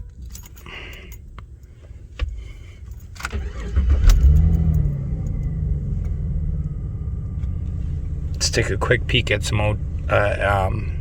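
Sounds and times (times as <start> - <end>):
keys jangling: 0.1 - 1.8
car engine starting and idling: 1.2 - 11.0
ignition clicking: 3.1 - 8.6.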